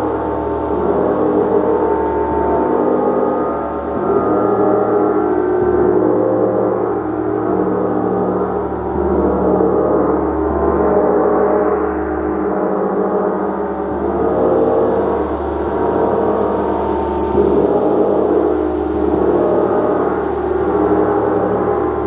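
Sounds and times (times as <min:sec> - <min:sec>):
gong ringing: 0:00.0 - 0:08.8.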